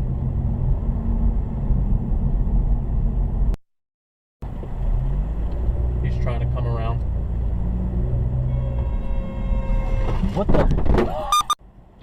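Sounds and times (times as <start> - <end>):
car engine rumble from inside: 0.0 - 3.6, 4.4 - 12.0
road noise: 0.0 - 3.6, 4.4 - 12.0.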